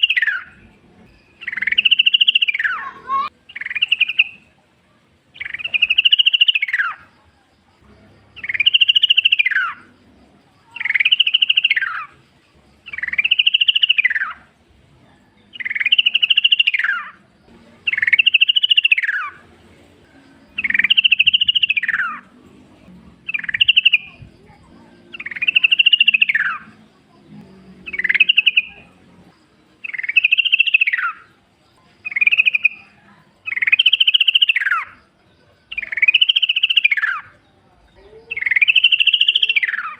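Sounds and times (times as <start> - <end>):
bird singing rattling phrase: 0.0 - 4.4, 17.8 - 19.4, 20.5 - 22.3, 23.2 - 26.8, 27.9 - 28.8, 29.8 - 31.3, 38.3 - 39.9.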